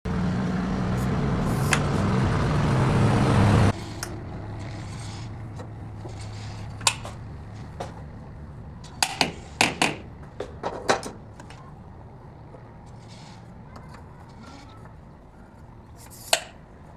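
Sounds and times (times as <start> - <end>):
motor humming: 0.1 - 9.6
sharp metallic clicks and knocks: 6.7 - 8.1, 8.8 - 11.7.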